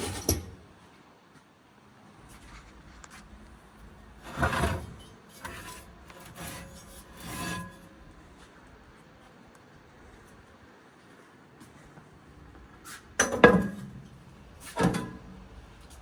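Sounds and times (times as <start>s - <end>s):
scraping and rubbing: 2.4s - 7.9s.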